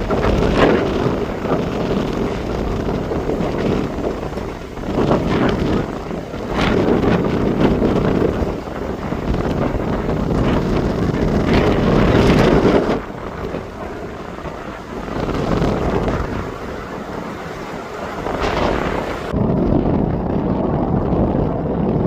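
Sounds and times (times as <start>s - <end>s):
jet engines roaring: 0.0s - 22.0s
wind buffeting microphone: 0.0s - 22.0s.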